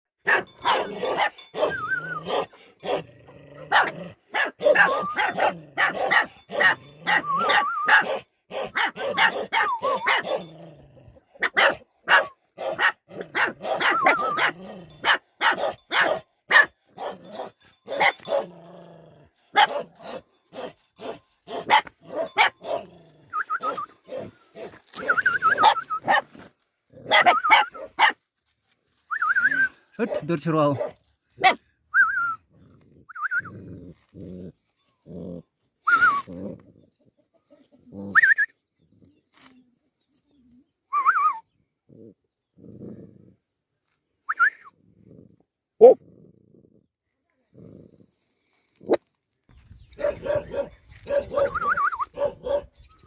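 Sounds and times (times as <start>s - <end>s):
dogs barking: 0.2s - 3.1s, 3.7s - 10.5s, 11.4s - 18.5s, 19.5s - 22.9s, 25.5s - 26.3s, 27.0s - 28.2s, 30.0s - 31.6s, 50.0s - 52.8s
dogs whining: 0.4s - 2.4s, 4.6s - 6.0s, 6.6s - 8.1s, 8.7s - 10.5s, 13.4s - 15.0s, 21.6s - 24.3s, 24.9s - 26.2s, 27.1s - 27.9s, 34.8s - 37.0s, 49.9s - 53.0s.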